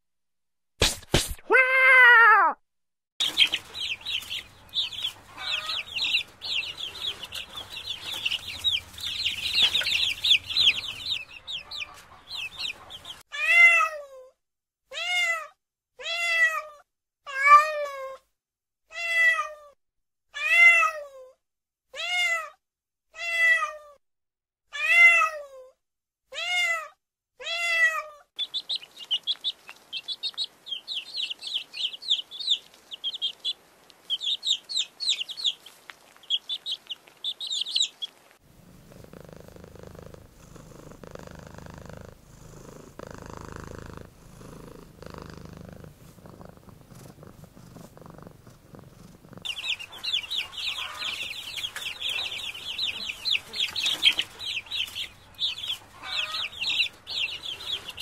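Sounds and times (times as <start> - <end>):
kitten meowing: 1.5 - 2.6
baby chicks peeping: 3.2 - 13.2, 28.4 - 38.4, 49.4 - 58.0.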